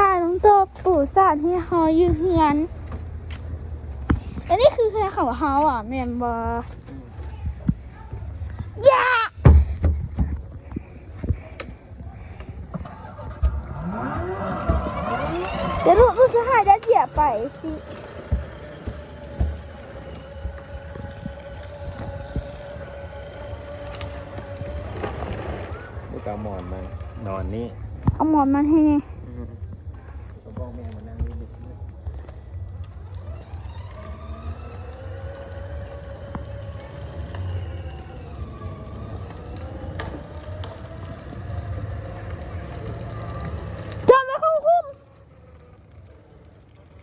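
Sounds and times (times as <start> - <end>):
ride-on motorbike motor whine: 9.5 - 47.0.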